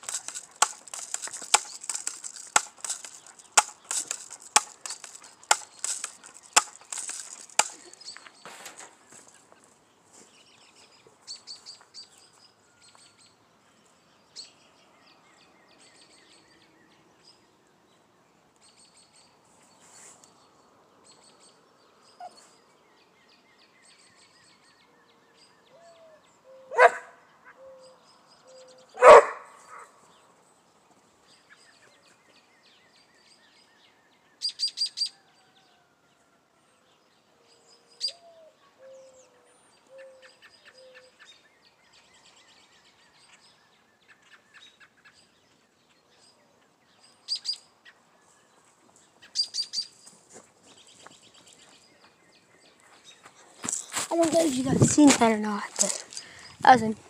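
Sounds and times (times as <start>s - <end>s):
sharp cracks: 0.0s - 9.4s
small birds chirping: 0.0s - 14.6s, 48.6s - 57.0s.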